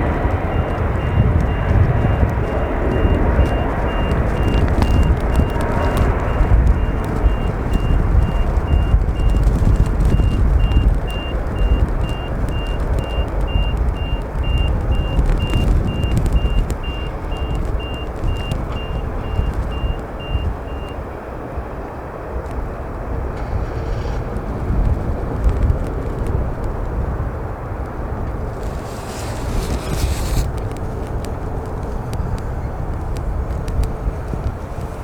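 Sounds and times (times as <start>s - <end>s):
reversing alarm beeping: 0.0s - 21.0s
wind buffeting microphone: 0.0s - 35.0s.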